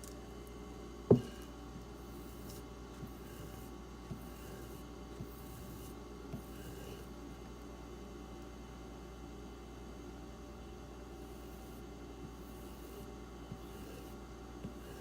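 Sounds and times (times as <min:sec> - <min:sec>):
knife rubbing on leather strop: 0:02.2 - 0:07.1, 0:12.4 - 0:15.0.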